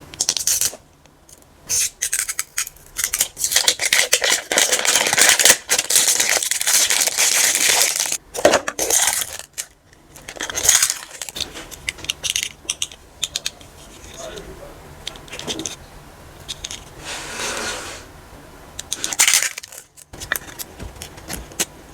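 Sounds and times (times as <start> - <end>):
plastic wrapping crinkling and tearing: 2.0 - 8.2, 8.8 - 11.5, 19.1 - 20.7.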